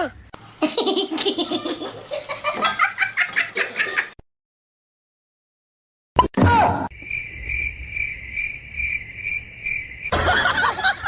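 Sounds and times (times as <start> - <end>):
cricket chirping: 6.9 - 11.0.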